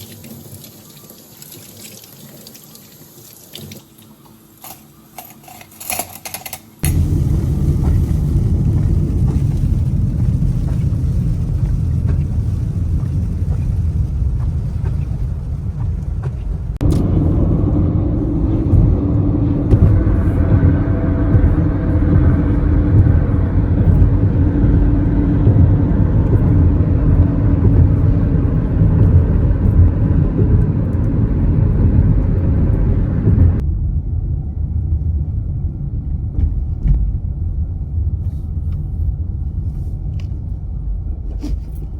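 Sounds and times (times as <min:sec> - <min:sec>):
car road and engine noise: 0:06.8 - 0:41.9.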